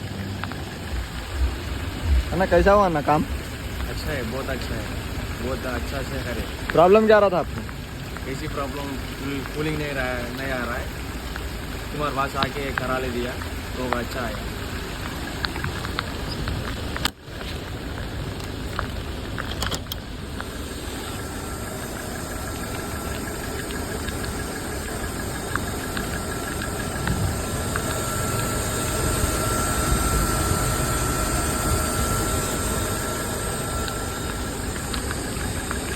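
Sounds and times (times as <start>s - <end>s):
ambulance engine idling: 20.2s - 35.9s
faint high whine: 20.2s - 35.9s.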